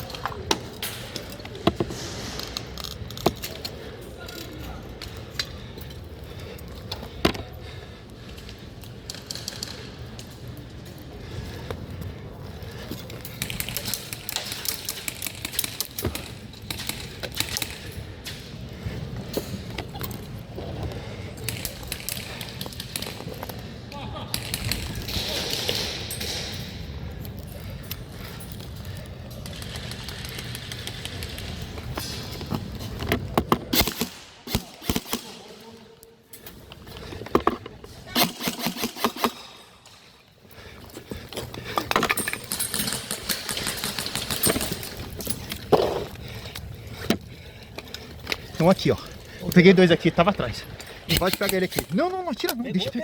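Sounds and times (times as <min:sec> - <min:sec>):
airsoft guns firing: 0:33.6 - 0:35.6, 0:38.2 - 0:39.6.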